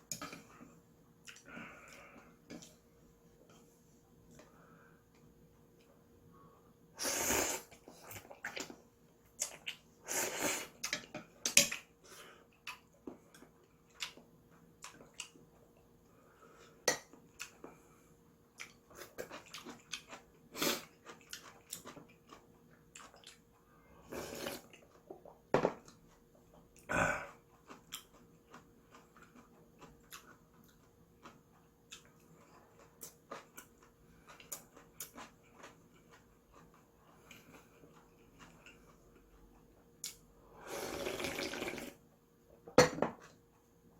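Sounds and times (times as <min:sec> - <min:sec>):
slurping noodles: 0:07.0 - 0:08.5, 0:10.0 - 0:10.8, 0:24.1 - 0:24.7, 0:40.6 - 0:42.0
chewing: 0:18.5 - 0:23.7, 0:24.4 - 0:40.3.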